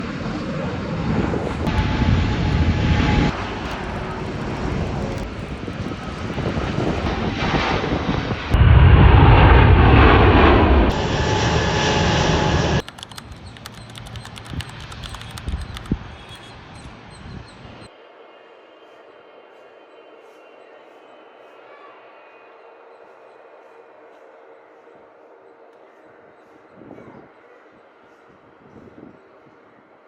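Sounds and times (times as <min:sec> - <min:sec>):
jet engines roaring: 0:00.0 - 0:18.3.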